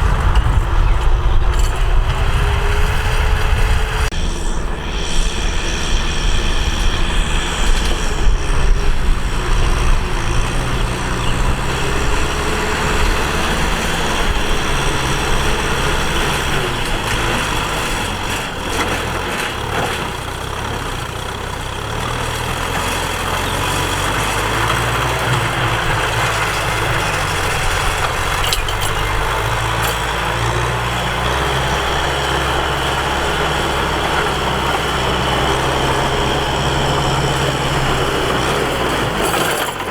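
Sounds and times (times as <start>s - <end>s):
tractor engine drone: 0.0s - 39.9s
wide hiss: 4.1s - 10.5s.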